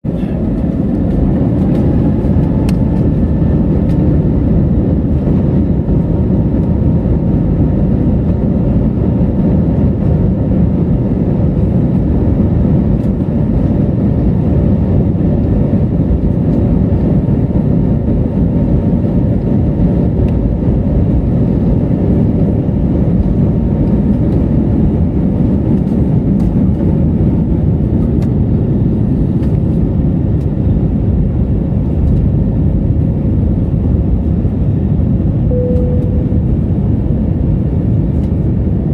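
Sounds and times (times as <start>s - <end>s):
airplane engine rumble: 0.0s - 38.9s
faint steady whine: 35.4s - 37.6s.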